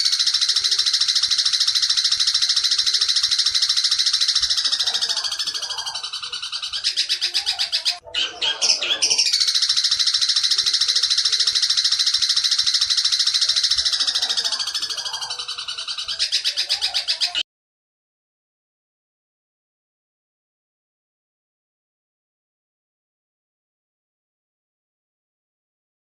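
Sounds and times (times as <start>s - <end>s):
bird singing harsh fast trill: 0.0s - 17.4s.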